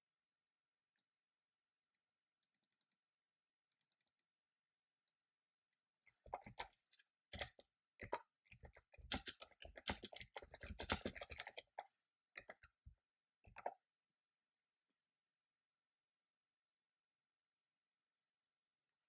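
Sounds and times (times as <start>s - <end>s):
typing on computer keyboard: 6.3s - 11.8s.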